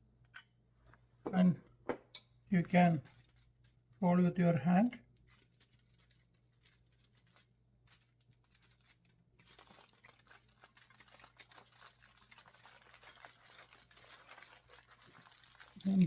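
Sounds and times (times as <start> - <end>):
aluminium foil crinkling: 2.5 - 4.1, 4.7 - 16.0.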